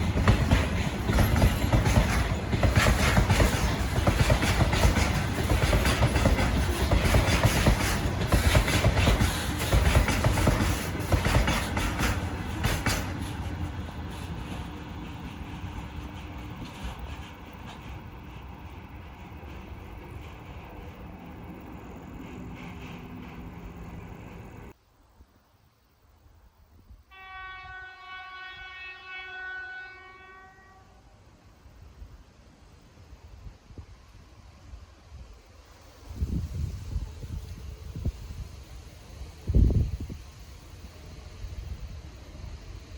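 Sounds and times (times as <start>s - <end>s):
train wheels clattering over rail joints: 0.0s - 24.8s
train rumble: 0.0s - 24.9s, 26.0s - 42.9s
train horn blast: 27.1s - 31.2s.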